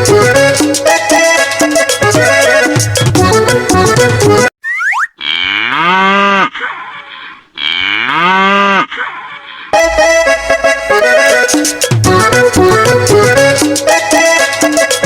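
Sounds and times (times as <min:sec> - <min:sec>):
music: 0:00.0 - 0:04.5, 0:09.8 - 0:15.0
cow mooing: 0:05.2 - 0:06.5, 0:07.6 - 0:08.9.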